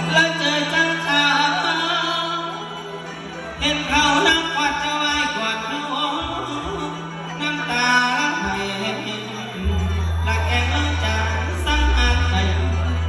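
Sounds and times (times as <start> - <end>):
band accompaniment: 0.0 - 13.0
person singing with ornamented notes: 0.0 - 13.0.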